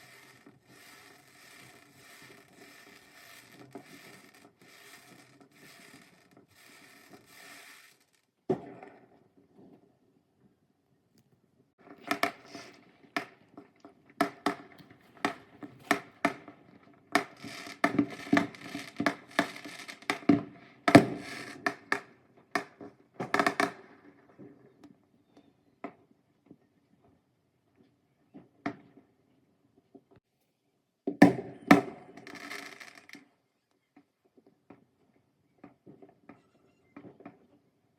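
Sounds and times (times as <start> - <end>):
fireworks crackling: 0.0 - 9.2, 11.8 - 24.7, 31.2 - 33.3
fireworks bangs and pops: 0.0 - 10.0, 11.8 - 25.0, 31.1 - 33.3.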